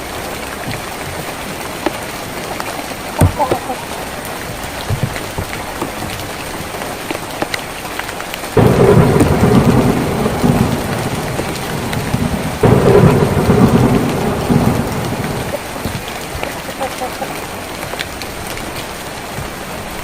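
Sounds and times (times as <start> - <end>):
rain drumming on tin roof: 0.0 - 20.0
thunder rumbling: 8.5 - 17.8.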